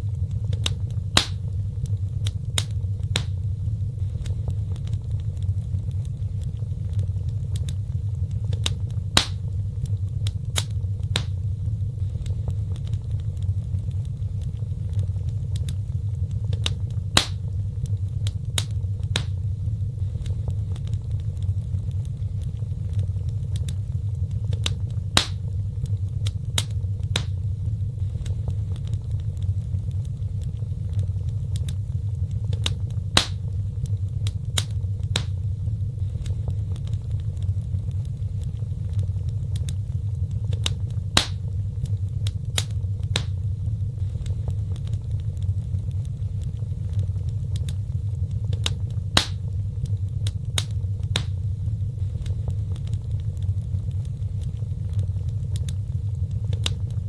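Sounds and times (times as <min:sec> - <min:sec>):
low rumble of flames: 0:00.0 - 0:57.0
wood fire crackling: 0:00.0 - 0:57.0.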